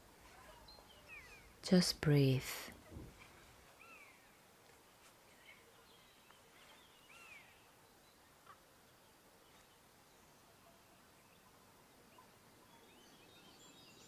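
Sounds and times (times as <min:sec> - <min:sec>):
faint room hiss: 0:00.0 - 0:14.0
faint bird chirps: 0:00.2 - 0:01.6, 0:03.7 - 0:04.4, 0:05.3 - 0:14.0.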